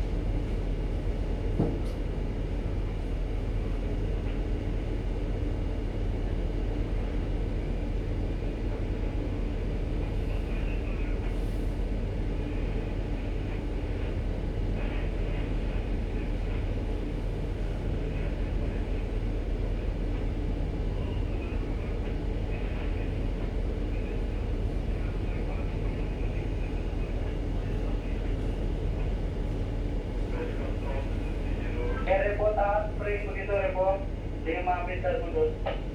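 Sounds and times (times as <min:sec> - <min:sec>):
ship engines droning: 0:02.2 - 0:35.9
faint voices: 0:20.8 - 0:35.9.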